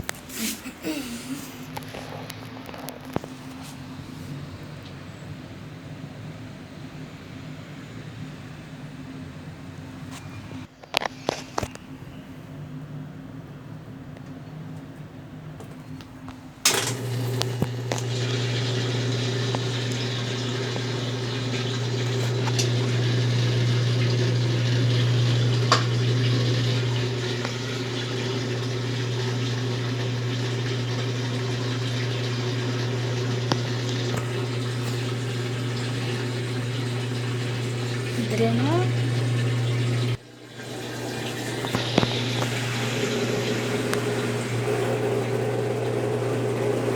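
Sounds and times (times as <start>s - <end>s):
washing machine humming: 0.0s - 10.4s, 14.8s - 46.9s
washing machine click: 16.6s - 29.5s
water rushing: 16.9s - 46.9s.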